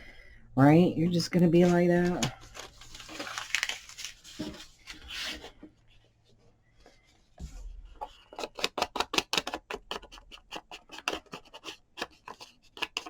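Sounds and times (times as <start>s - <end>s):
paper rustle: 1.6s - 6.1s
hands scratching on paper: 8.0s - 13.0s.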